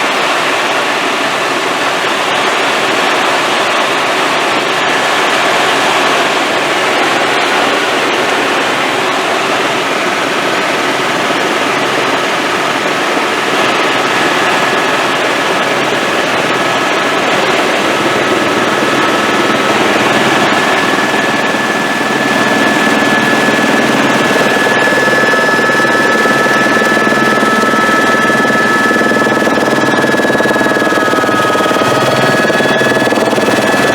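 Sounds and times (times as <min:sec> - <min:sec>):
helicopter engine and rotor noise: 0:00.0 - 0:33.9
high steady whine: 0:03.9 - 0:33.9.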